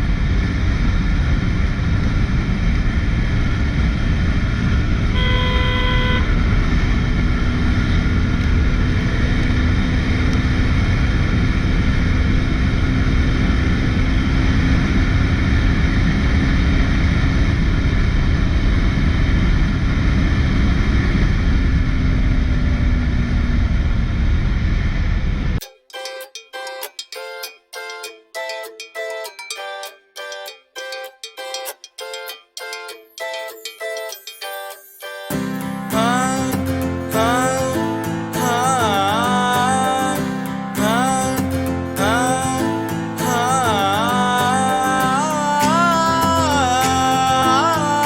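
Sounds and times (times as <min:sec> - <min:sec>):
wind and road noise: 0:00.0 - 0:25.6
vehicle horn honking: 0:05.1 - 0:06.9.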